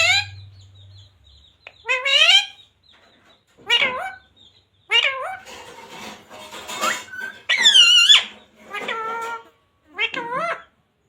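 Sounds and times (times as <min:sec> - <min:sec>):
parrot calling: 0:00.0 - 0:02.7, 0:03.6 - 0:04.3, 0:04.9 - 0:05.7, 0:06.6 - 0:10.8
parrot rasping chatter: 0:01.7 - 0:02.6, 0:04.9 - 0:10.7.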